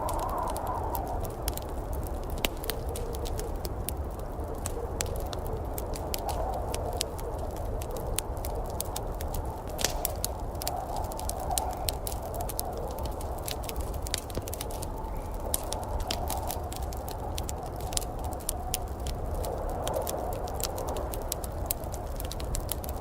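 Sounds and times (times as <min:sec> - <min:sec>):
wood fire crackling: 0:00.0 - 0:23.0
sharp pops: 0:09.7 - 0:10.3.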